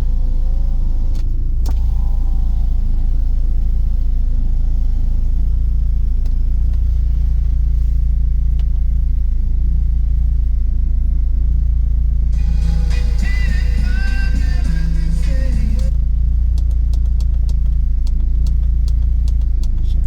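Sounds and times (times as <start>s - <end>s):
car engine drone from cabin: 0.0s - 20.0s.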